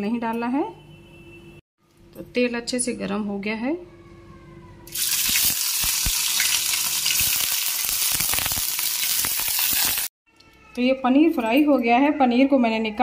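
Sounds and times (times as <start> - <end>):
cheese sizzling in hot oil: 4.9 - 10.1
oil popping and crackling: 4.9 - 10.1.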